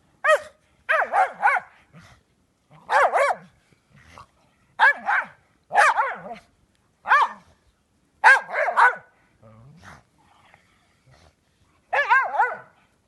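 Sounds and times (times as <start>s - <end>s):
dog barking in high-pitched yaps: 0.2s - 1.8s, 2.9s - 3.5s, 4.8s - 6.4s, 7.0s - 7.4s, 8.2s - 9.1s, 11.9s - 12.7s.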